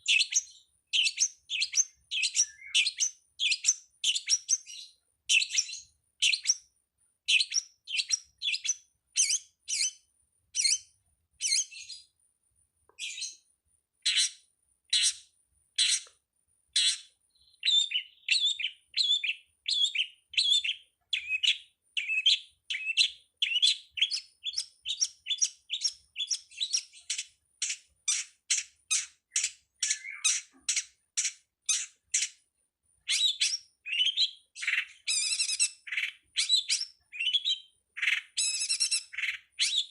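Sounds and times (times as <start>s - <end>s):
bird scratchy chirps: 13.0s - 13.4s, 14.0s - 16.1s, 16.8s - 32.4s, 33.0s - 39.9s.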